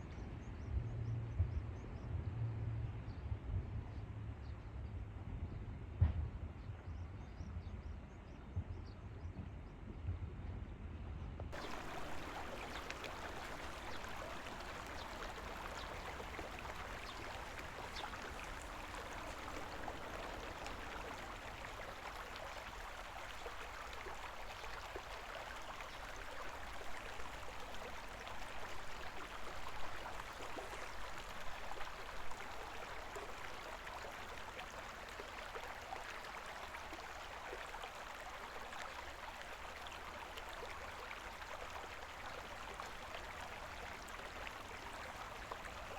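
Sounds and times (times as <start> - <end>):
river water babbling over stones: 11.6 - 45.9
water splashes: 11.6 - 45.9.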